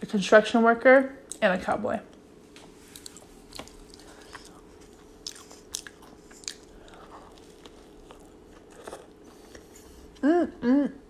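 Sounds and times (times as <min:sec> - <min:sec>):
biting and chewing burger: 0:02.8 - 0:10.2.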